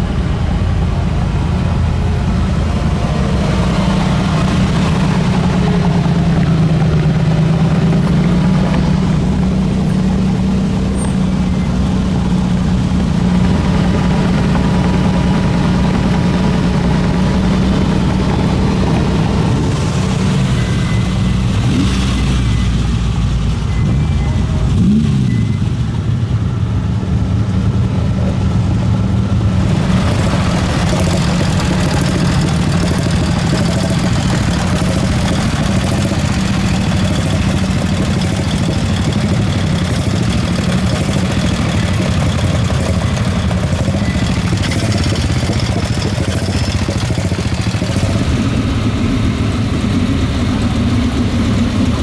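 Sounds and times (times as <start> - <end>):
engine revving: 0.0 - 26.1, 29.4 - 52.0
car engines running: 0.0 - 52.0
road noise: 0.0 - 52.0.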